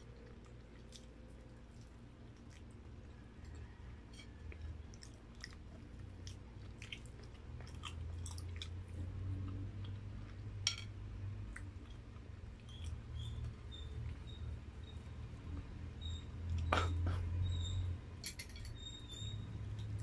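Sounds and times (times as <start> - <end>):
person chewing: 4.2 - 10.5.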